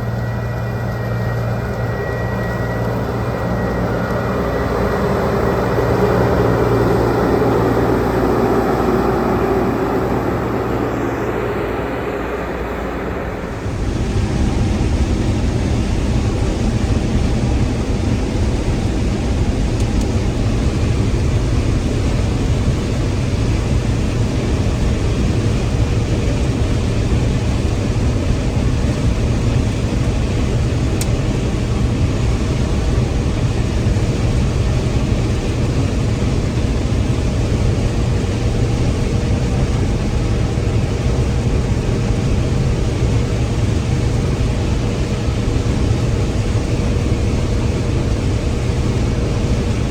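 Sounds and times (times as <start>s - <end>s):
combine harvester droning: 0.0s - 49.9s
constant machine hum: 0.0s - 49.9s.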